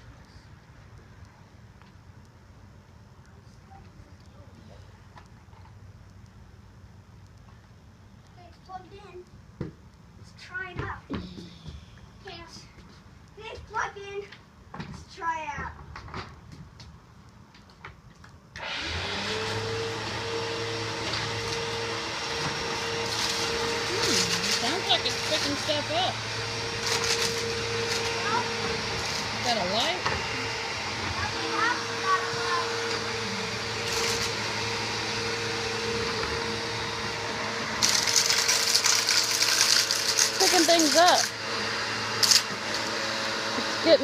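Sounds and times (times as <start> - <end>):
vacuum cleaner motor: 18.6 - 44.0.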